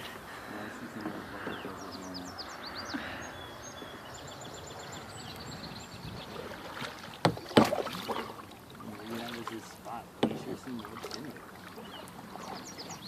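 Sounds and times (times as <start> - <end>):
birds chirping and singing: 0.0 - 13.0.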